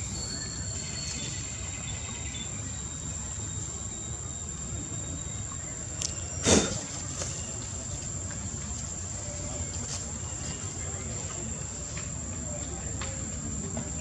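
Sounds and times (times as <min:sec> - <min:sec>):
high-pitched insect drone: 0:00.0 - 0:06.3.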